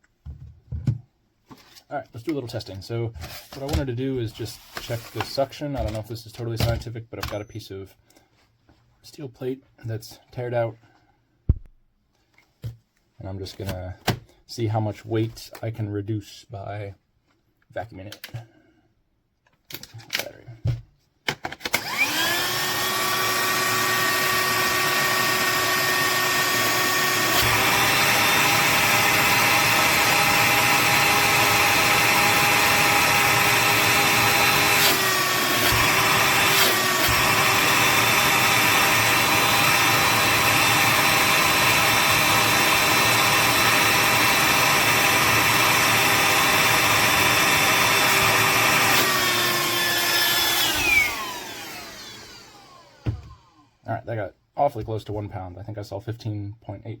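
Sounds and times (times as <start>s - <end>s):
handheld vacuum motor whine: 21.7s - 53.8s.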